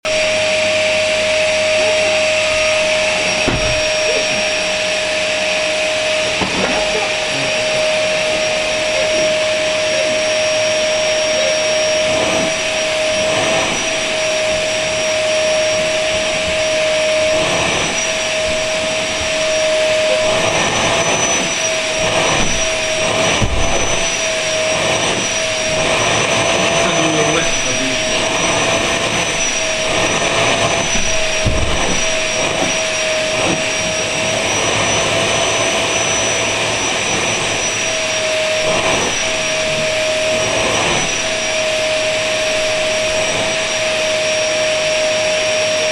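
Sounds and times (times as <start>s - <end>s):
vacuum cleaner running: 0.0s - 45.9s
soft knocks: 3.3s - 4.6s.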